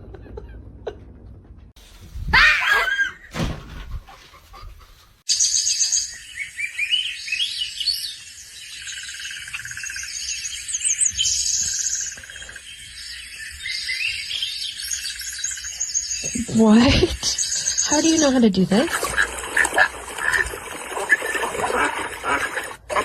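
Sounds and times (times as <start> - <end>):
small birds chirping: 5.3 - 19.3.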